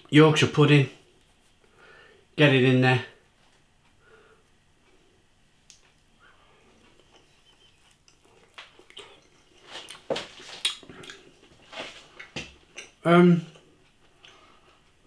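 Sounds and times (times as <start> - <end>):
man chewing food: 3.8 - 13.0, 13.6 - 15.0
mouth smacks and clicks: 6.9 - 11.3.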